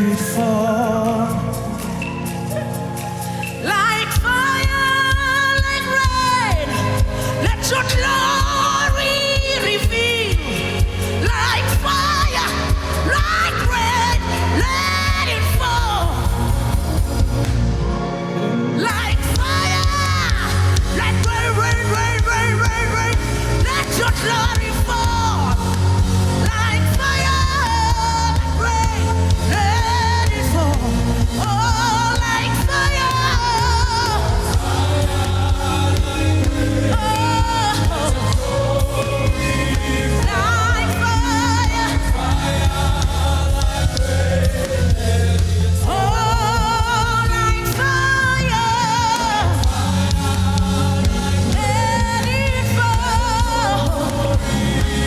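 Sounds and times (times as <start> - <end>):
gospel band with strong bass: 0.0 - 55.0.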